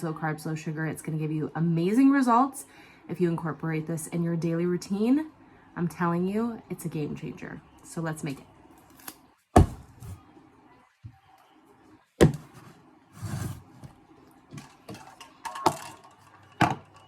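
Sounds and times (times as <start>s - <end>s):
containers knocking on a counter: 12.2s - 12.6s.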